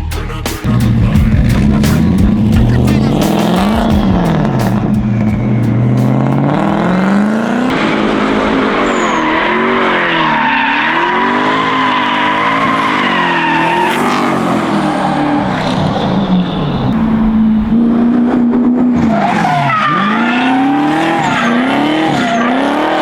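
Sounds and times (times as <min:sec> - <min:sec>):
car engine revving: 0:00.0 - 0:23.0
tyres squealing: 0:08.8 - 0:18.0.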